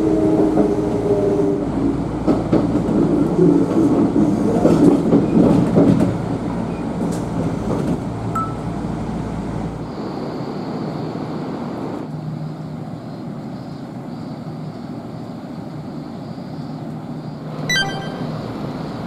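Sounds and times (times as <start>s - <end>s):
electric train rumble and hum: 0.0s - 17.5s, 18.2s - 19.0s
wheels clacking over rail joints: 2.2s - 8.8s.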